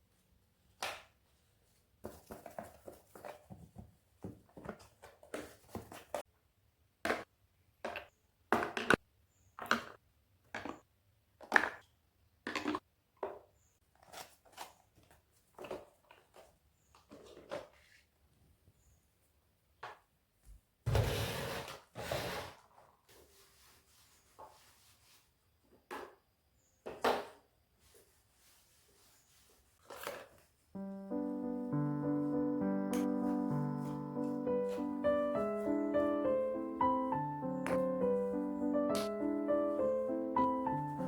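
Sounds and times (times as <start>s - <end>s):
objects knocking and tapping: 7.1s - 9.0s.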